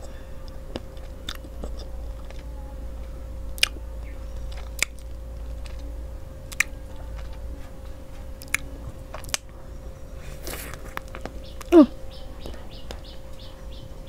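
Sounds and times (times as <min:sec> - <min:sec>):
quiet chewing: 0:00.0 - 0:13.5
wet mouth clicks and smacks: 0:04.5 - 0:05.8, 0:06.5 - 0:06.7, 0:08.4 - 0:09.5.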